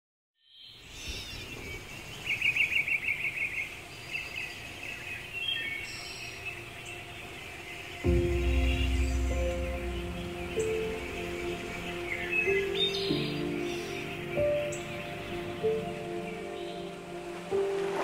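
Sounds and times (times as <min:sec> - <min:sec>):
small birds chirping: 0:00.4 - 0:17.8
music with low held notes: 0:06.8 - 0:18.0.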